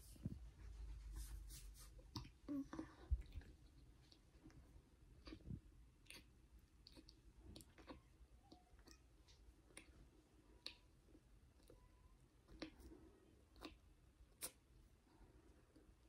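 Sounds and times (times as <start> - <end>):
wet mouth chewing clicks: 5.2 - 8.0.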